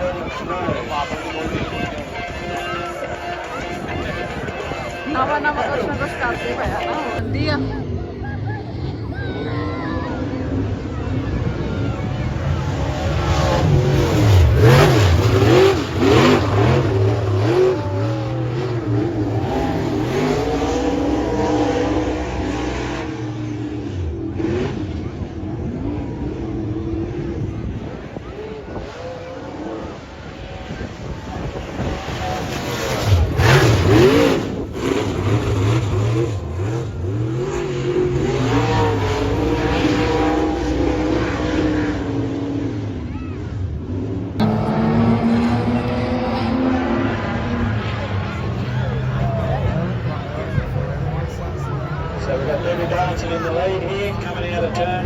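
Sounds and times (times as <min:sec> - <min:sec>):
racing engine revving hard: 0:10.3 - 0:55.0.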